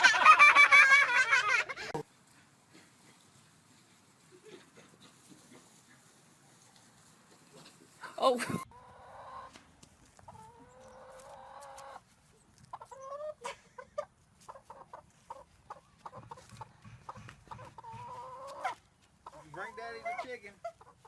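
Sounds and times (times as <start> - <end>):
chicken clucking: 7.4 - 21.0.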